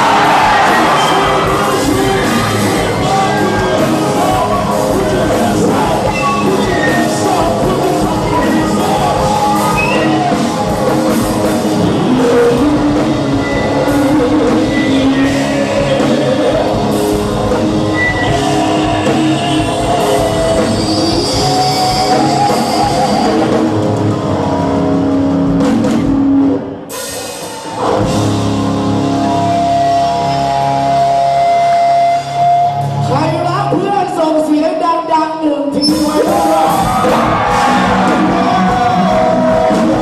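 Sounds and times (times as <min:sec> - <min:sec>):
loud rock music: 0:00.0 - 0:40.0.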